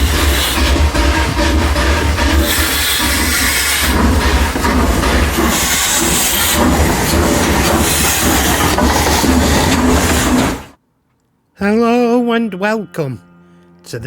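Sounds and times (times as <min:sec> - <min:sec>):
train clattering on rails: 0:00.0 - 0:10.8.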